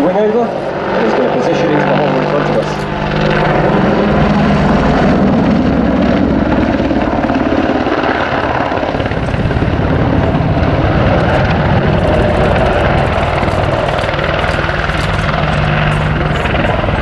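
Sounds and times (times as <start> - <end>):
turbine noise: 0.0 - 17.0
helicopter rotor thudding: 1.3 - 17.0.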